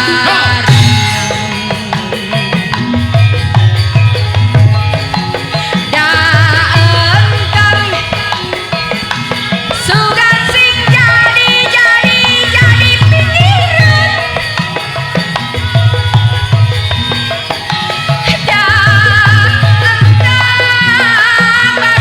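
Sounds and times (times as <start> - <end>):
hand drums beating: 0.0 - 22.0
wavering melodic lead line: 0.0 - 22.0.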